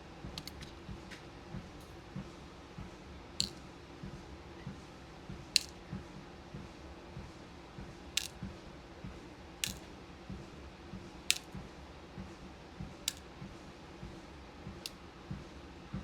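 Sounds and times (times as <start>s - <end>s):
sharp small click: 11.3s - 11.5s
footsteps on treadmill: 15.3s - 16.0s.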